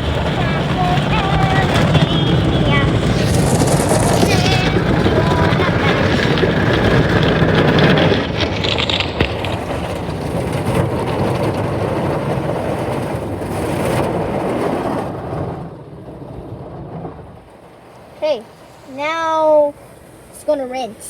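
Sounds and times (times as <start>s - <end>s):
car wash brushes and water spray: 0.0s - 15.4s.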